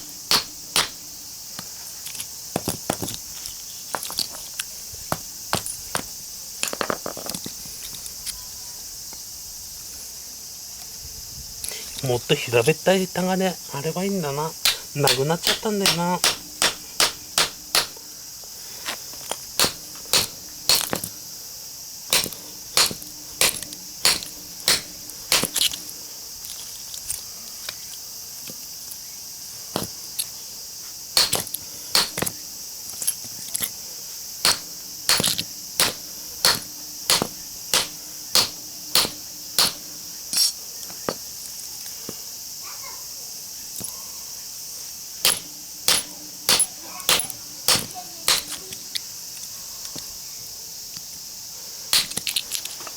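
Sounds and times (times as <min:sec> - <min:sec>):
hammer striking metal: 0:00.0 - 0:01.0, 0:14.6 - 0:18.0, 0:19.6 - 0:21.1, 0:22.1 - 0:25.7, 0:34.5 - 0:39.9, 0:45.2 - 0:48.6
insects chirring: 0:00.0 - 0:52.9.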